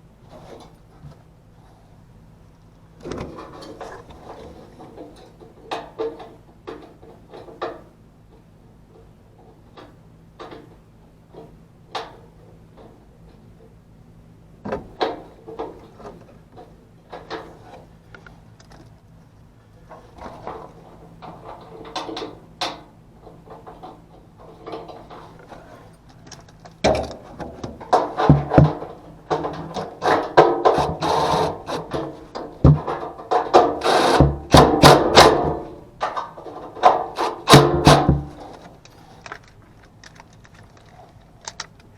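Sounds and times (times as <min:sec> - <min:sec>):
steady low hum: 0:00.0 - 0:41.9
tools and parts clicking: 0:36.0 - 0:41.9.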